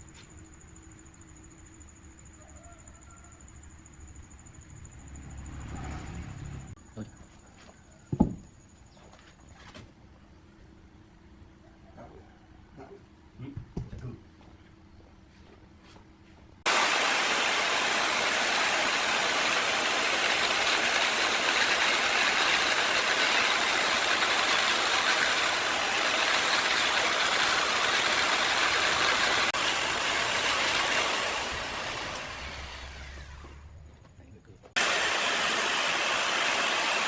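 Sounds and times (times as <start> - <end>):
woodworking power tool whining: 16.7 - 33.9, 34.8 - 37.0.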